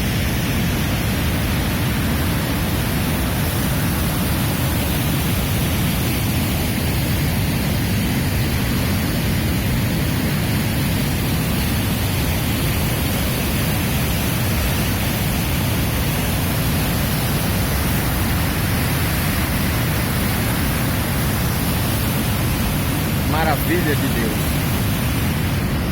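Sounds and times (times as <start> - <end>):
waterfall rushing: 0.0 - 25.9.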